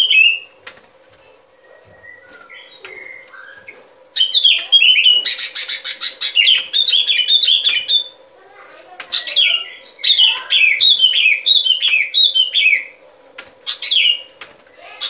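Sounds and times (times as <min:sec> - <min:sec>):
bird chattering calls: 0:00.0 - 0:15.0
soft whistled bird notes: 0:01.5 - 0:05.5.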